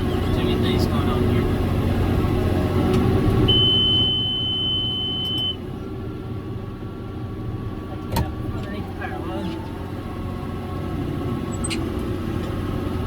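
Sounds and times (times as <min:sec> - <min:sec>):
tractor diesel engine running: 0:00.0 - 0:13.0
high-pitched monitor beep: 0:03.5 - 0:05.6.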